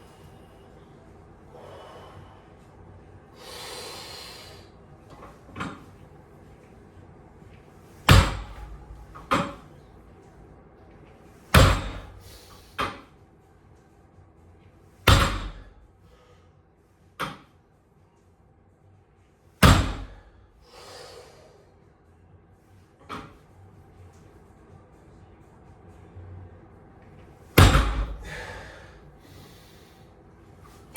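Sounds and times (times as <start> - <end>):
hard exhales: 1.5 - 2.5, 3.4 - 4.7, 20.1 - 21.6, 28.0 - 30.1
weight plates thudding down: 8.1 - 9.7, 11.6 - 13.0, 15.1 - 15.7, 19.6 - 20.2, 27.6 - 28.6.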